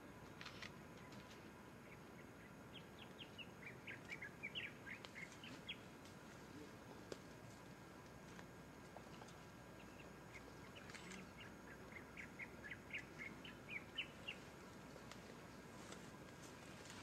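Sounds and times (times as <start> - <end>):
faint bird chirps: 0.1 - 5.9, 9.7 - 14.5.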